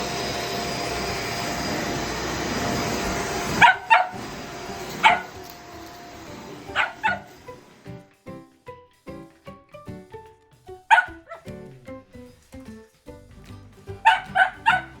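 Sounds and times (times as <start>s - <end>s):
vacuum cleaner running: 0.0s - 8.0s
puppy barking: 3.2s - 7.7s, 10.9s - 11.5s, 14.0s - 15.0s.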